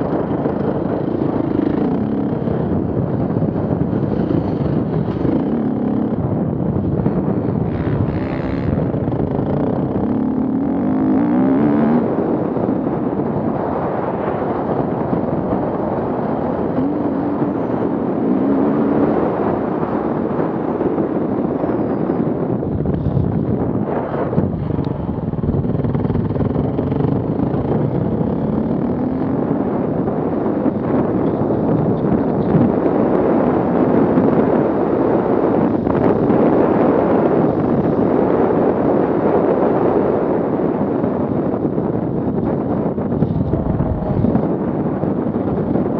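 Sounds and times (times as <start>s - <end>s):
off-road vehicle engines revving: 0.0s - 12.7s.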